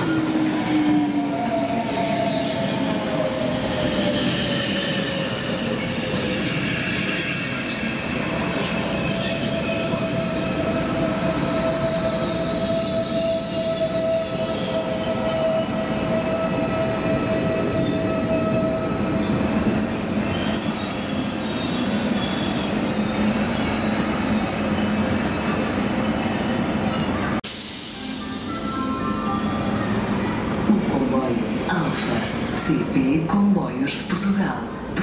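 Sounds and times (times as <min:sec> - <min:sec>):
high brake squeal: 0:05.8 - 0:30.0.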